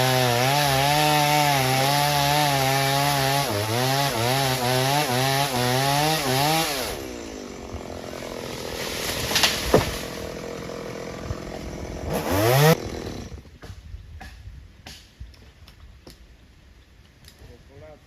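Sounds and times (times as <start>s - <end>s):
chainsaw engine idling and revving: 0.0s - 13.5s
sharp cracks: 8.8s - 10.3s.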